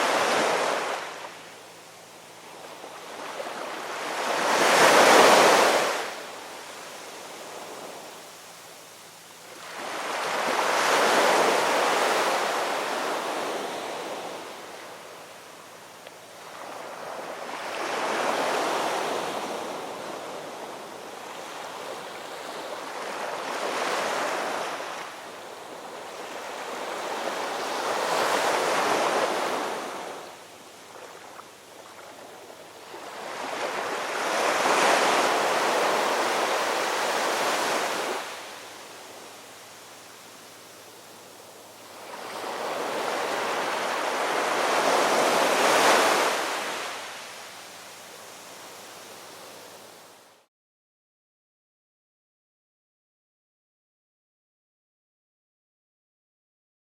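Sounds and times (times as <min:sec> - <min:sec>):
ocean waves breaking: 0:00.0 - 0:01.4, 0:02.5 - 0:06.4, 0:09.6 - 0:14.8, 0:16.4 - 0:30.3, 0:30.9 - 0:39.3, 0:41.9 - 0:47.4
surf hiss: 0:00.0 - 0:50.5.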